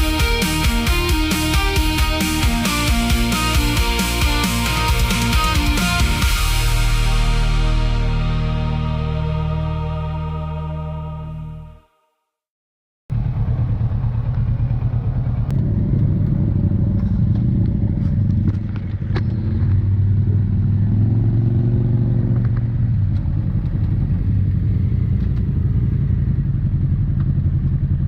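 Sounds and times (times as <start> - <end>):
motorcycle engines rumbling: 13.1 - 28.0
engine revving up: 13.2 - 22.6.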